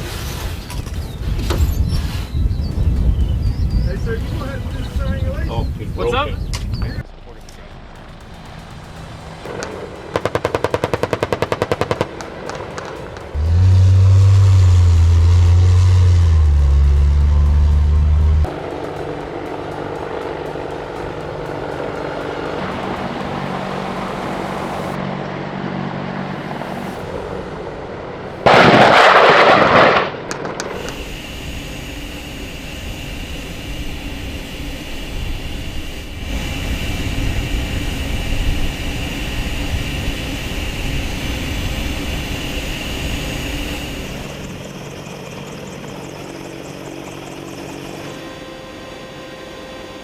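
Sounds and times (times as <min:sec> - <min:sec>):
aircraft engine noise: 0:00.0 - 0:50.0
low rumble with high whine: 0:00.8 - 0:48.7
loud rushing blast: 0:07.0 - 0:44.8.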